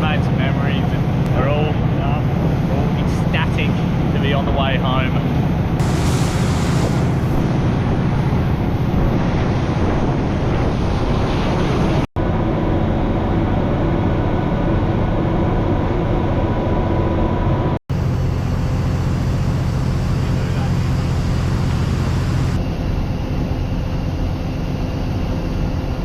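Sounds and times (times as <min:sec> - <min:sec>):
water along hull: 0:00.0 - 0:12.0, 0:17.9 - 0:26.0
boat engine droning: 0:00.0 - 0:26.0
wind on microphone: 0:05.1 - 0:13.5.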